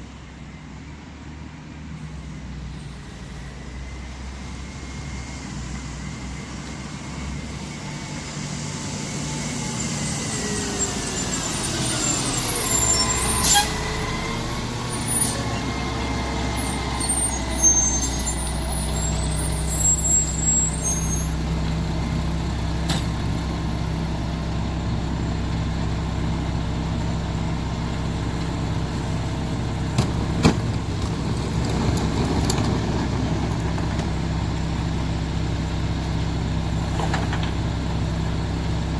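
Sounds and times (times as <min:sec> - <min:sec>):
truck engine idling: 0:05.6 - 0:38.9
sharp knocks and clanks: 0:29.9 - 0:32.7.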